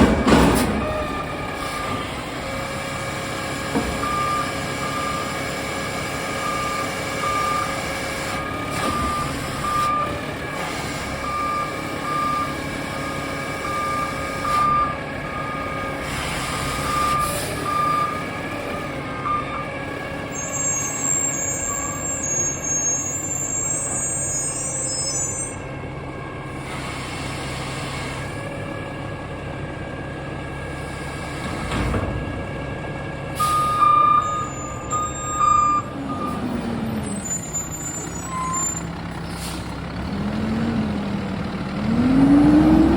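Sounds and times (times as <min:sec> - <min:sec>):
diesel engine running: 0:00.0 - 0:42.9
reverse alarm beeping: 0:04.0 - 0:05.4, 0:06.4 - 0:07.8, 0:11.2 - 0:16.0, 0:16.6 - 0:18.2, 0:33.4 - 0:36.5
air brake hisses: 0:26.6 - 0:28.3, 0:38.0 - 0:39.8.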